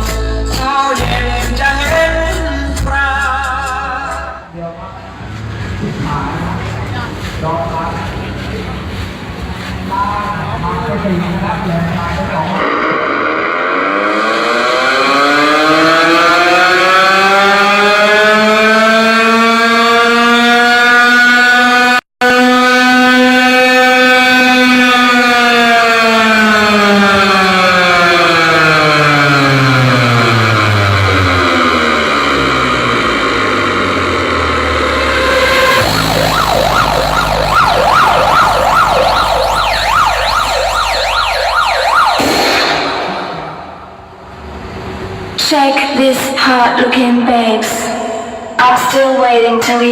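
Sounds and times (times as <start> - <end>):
heavy bass: 0.0 - 17.0, 26.2 - 45.6
siren sound effect: 10.6 - 45.5
loud buzzy tone gliding upward: 12.5 - 21.0, 25.8 - 45.4.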